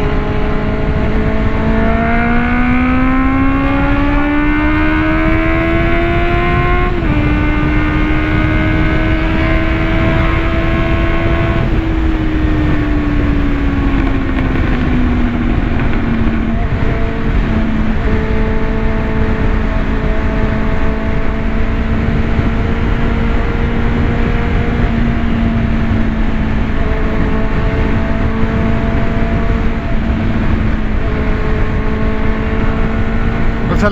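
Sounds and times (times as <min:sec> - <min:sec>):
motorcycle engine revving: 0:00.0 - 0:33.9
wind rushing over microphone: 0:00.0 - 0:33.9.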